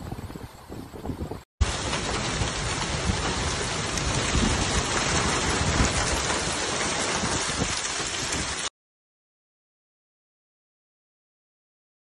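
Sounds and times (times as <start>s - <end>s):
heavy rain pouring: 1.3s - 8.7s.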